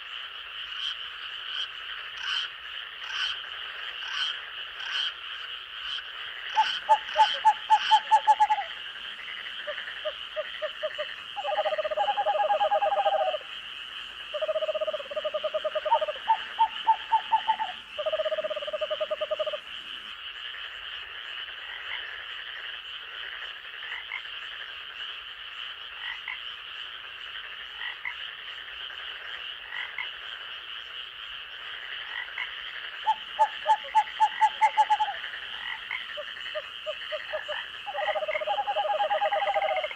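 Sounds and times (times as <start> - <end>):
rapid pulsed frog croaks: 0.0 - 39.9
high-pitched frog trilling: 4.0 - 19.8, 32.0 - 39.9.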